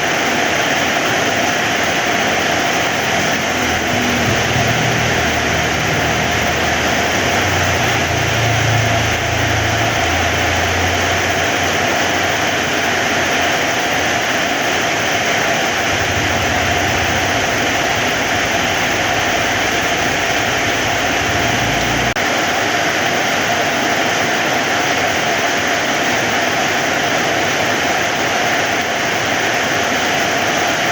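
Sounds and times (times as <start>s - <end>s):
heavy rain falling: 0.0s - 30.9s
low rumble: 2.9s - 13.1s, 15.6s - 22.2s.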